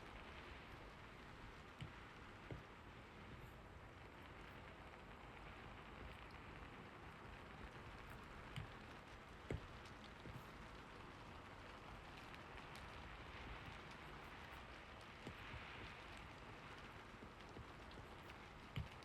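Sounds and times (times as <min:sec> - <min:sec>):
faint rain hiss: 0:00.0 - 0:19.0.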